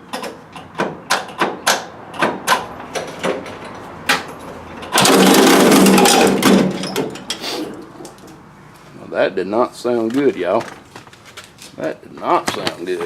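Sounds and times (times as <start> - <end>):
diesel tractor engine clattering: 0.0 - 8.5
engine cranking knocks: 0.1 - 7.3.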